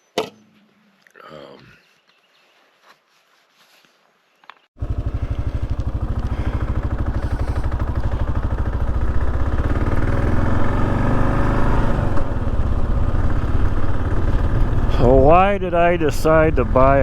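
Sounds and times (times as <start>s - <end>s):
motorcycle engine running: 4.8s - 17.0s.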